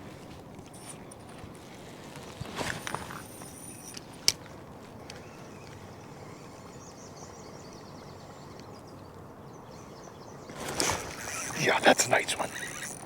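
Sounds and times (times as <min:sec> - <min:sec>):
outdoor background noise: 0:00.0 - 0:13.0
faint high chirping: 0:05.1 - 0:13.0.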